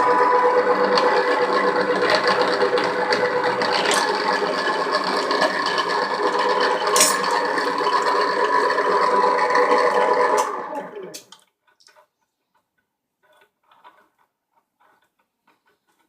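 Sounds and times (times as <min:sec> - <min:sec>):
pipe threading machine humming: 0:00.0 - 0:11.4
metallic rattling and scraping: 0:01.9 - 0:07.8.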